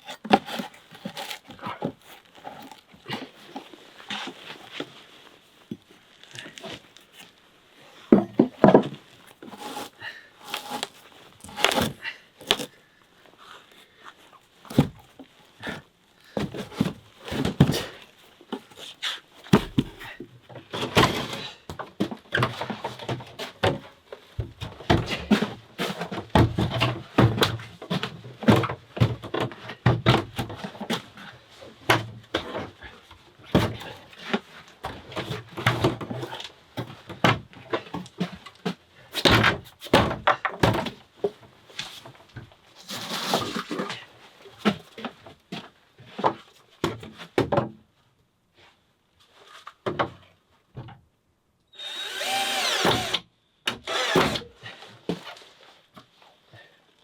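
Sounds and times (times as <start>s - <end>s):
wooden knocks of timber handling: 8.1s - 9.0s, 19.5s - 20.2s, 46.2s - 47.8s.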